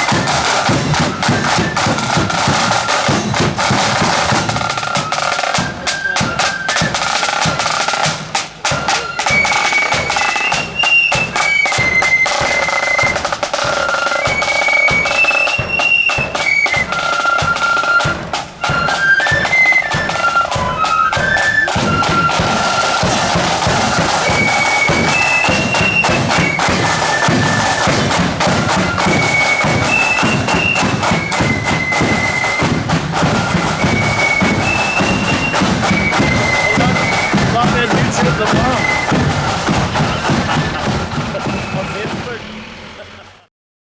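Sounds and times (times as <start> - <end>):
drum strikes: 0.0 - 43.5
shrill marching band melody: 0.0 - 43.5.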